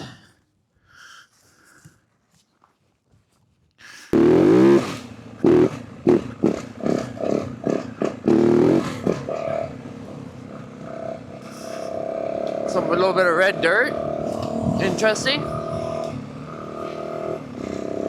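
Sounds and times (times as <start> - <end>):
dirt bike engine throttle blips: 4.2 - 18.0.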